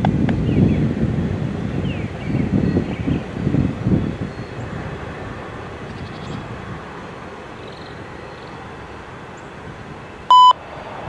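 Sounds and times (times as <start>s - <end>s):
freight train rumble: 0.0s - 11.0s
wind buffeting microphone: 0.0s - 11.0s.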